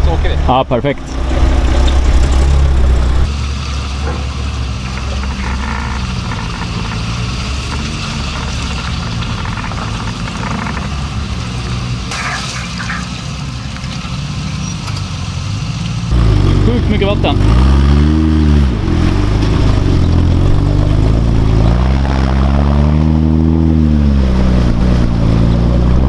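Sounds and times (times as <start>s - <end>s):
truck engine running at low revs: 0.0s - 3.3s, 16.1s - 26.0s
water sloshing and splashing: 0.8s - 3.3s.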